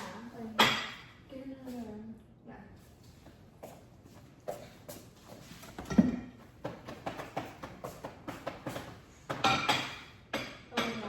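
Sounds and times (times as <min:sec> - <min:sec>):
plates knocking on counter: 0:05.8 - 0:11.0.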